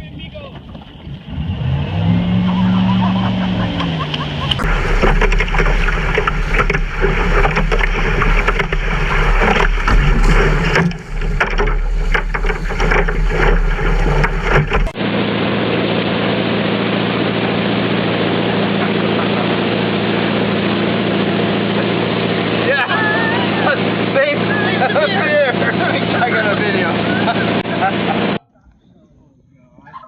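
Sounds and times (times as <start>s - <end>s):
wind buffeting: 0.0s - 15.0s
boat engine droning: 0.0s - 28.5s
water rushing: 0.5s - 15.0s, 16.7s - 28.4s
crackles and knocks: 3.1s - 15.0s.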